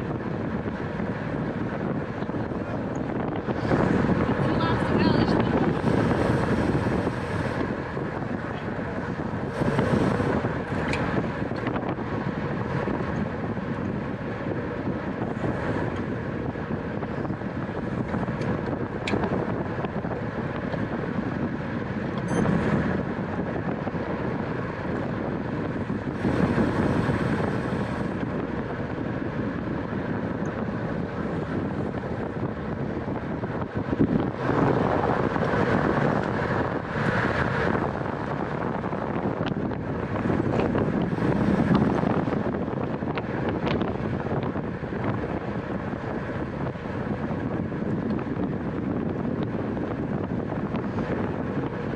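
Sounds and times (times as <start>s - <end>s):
wind rushing over microphone: 0.0s - 51.9s.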